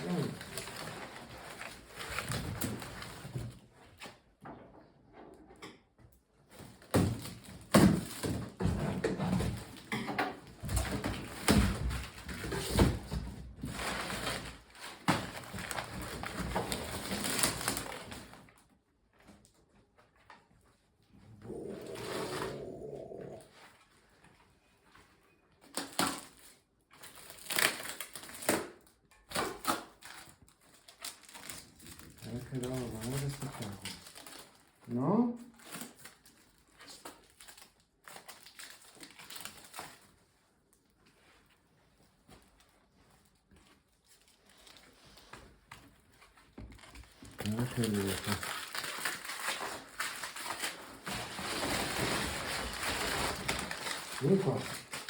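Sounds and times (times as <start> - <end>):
packaging being crumpled: 0.0 - 3.5, 13.6 - 18.5, 25.7 - 40.1, 46.2 - 55.0.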